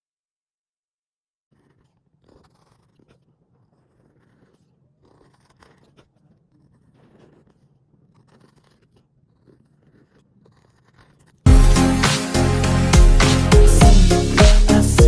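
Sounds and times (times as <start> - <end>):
soft scratching and clicking: 1.5 - 11.5.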